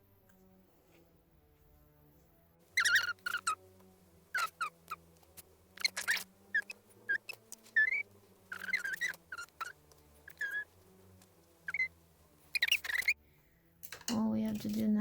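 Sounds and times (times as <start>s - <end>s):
small bird chirping: 2.8s - 13.2s.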